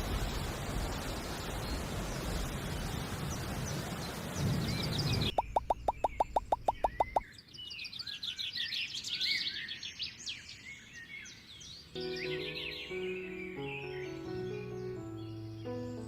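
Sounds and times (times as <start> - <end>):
birds chirping: 0.1 - 16.0
music: 12.0 - 16.0.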